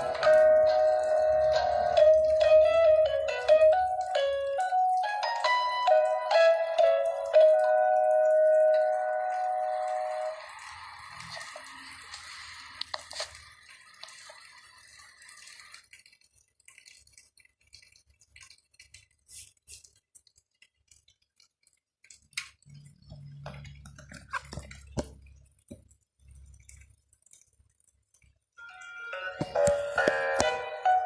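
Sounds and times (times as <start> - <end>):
background music: 0.0 - 11.1, 28.6 - 31.0.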